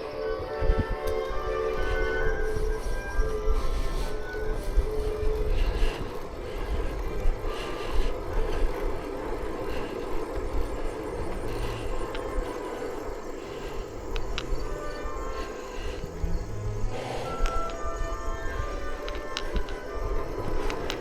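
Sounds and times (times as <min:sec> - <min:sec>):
wind and road noise: 0:00.0 - 0:21.0
sharp ticks: 0:11.5 - 0:16.3, 0:18.6 - 0:21.0.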